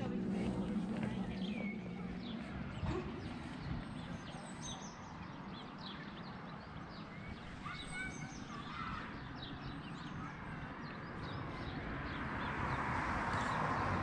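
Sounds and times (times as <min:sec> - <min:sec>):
low outdoor rumble: 0:00.0 - 0:04.4
small birds chirping: 0:00.0 - 0:14.0.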